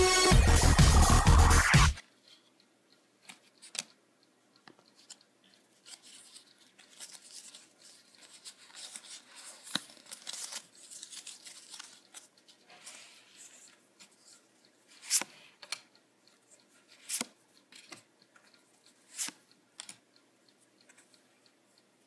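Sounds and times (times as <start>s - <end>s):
cards rustling and sliding: 4.9s - 15.8s, 16.9s - 18.0s, 19.1s - 20.0s.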